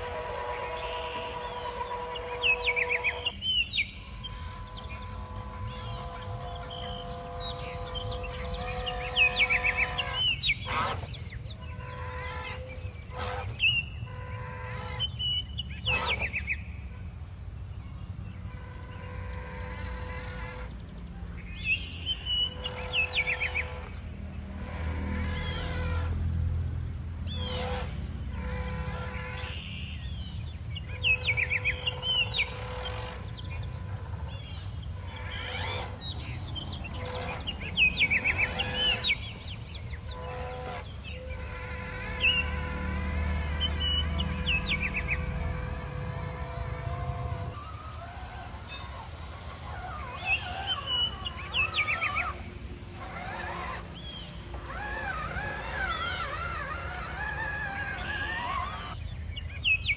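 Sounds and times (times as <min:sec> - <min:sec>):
on-and-off hum: 0:00.0 - 0:13.9, 0:27.4 - 0:59.0
birds chirping in trills: 0:00.0 - 0:59.9.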